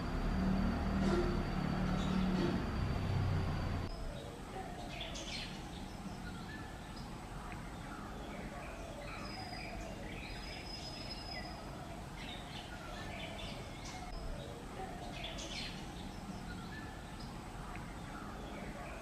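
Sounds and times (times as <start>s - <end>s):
quiet outdoor hiss: 0.0s - 19.0s
small birds chirping and trilling: 0.0s - 19.0s.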